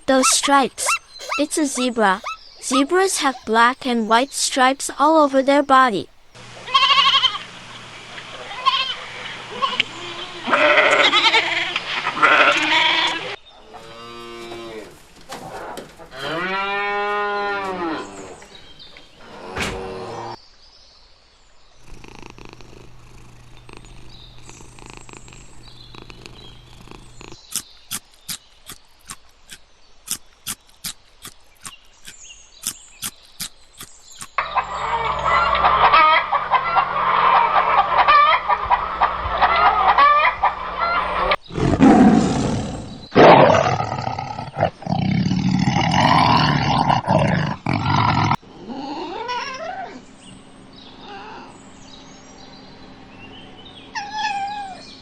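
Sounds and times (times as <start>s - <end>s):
animal calls: 0.0s - 7.4s, 21.8s - 52.0s, 53.0s - 55.0s.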